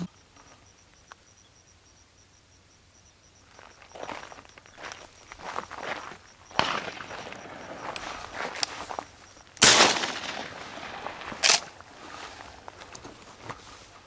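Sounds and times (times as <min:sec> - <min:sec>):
shotgun shot: 0:06.6 - 0:07.6, 0:09.6 - 0:11.6.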